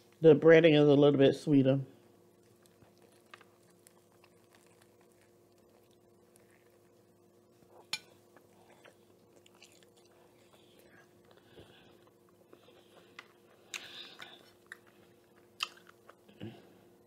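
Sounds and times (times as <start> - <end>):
faint steady hum: 0.0 - 17.0
chewing and biting: 2.4 - 7.0, 7.7 - 16.4.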